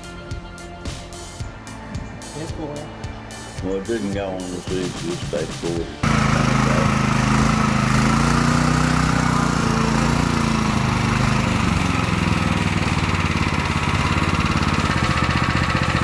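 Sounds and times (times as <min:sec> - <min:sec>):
mower engine running: 0:02.1 - 0:16.0.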